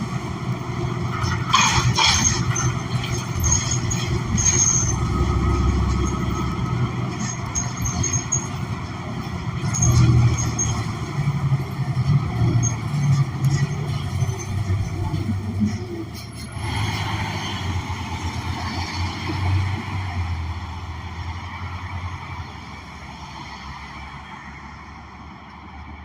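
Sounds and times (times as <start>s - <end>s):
bus engine rumble: 0.0s - 26.0s
high-pitched squeaks: 1.2s - 8.8s.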